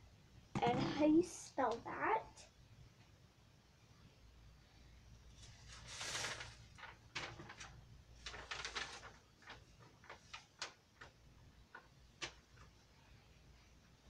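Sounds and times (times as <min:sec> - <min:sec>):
rustle: 0:05.4 - 0:10.7.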